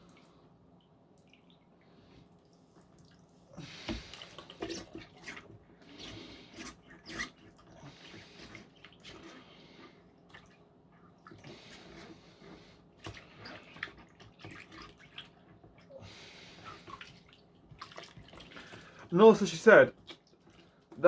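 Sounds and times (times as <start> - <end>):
water sloshing in a bowl: 1.1 - 21.0
water dripping and splashing: 13.0 - 15.9, 16.6 - 21.0.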